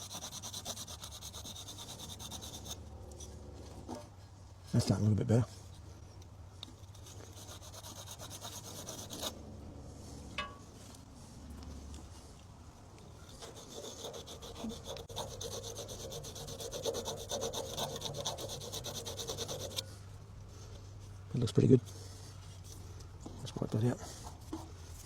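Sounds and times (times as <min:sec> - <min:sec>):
abrasive mesh rasping on metal: 0:00.0 - 0:02.8, 0:06.9 - 0:09.4, 0:13.3 - 0:19.9.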